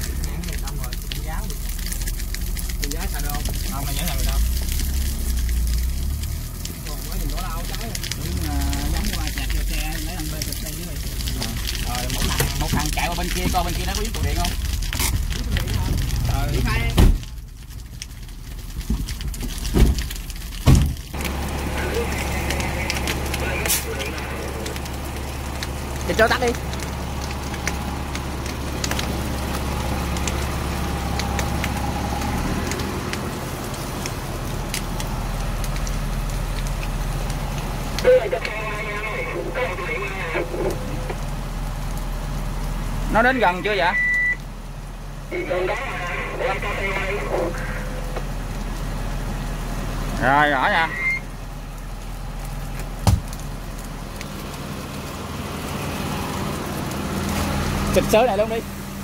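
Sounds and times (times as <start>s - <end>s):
burning grass crackling: 0.0s - 59.0s
fire engine motor droning: 0.0s - 59.0s.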